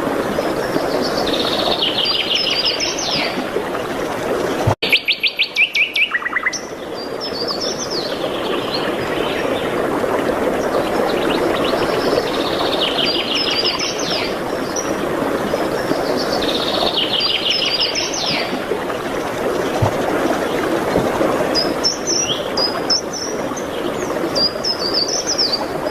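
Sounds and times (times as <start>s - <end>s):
songbird singing with trill: 4.9s - 6.7s.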